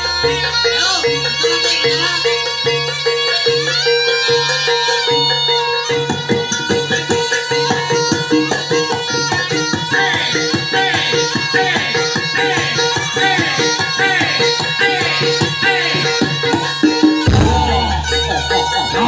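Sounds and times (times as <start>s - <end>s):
wavering high melody: 0.0s - 19.0s
hand drums beating: 5.2s - 19.0s
sustained pitched tones: 9.9s - 19.0s.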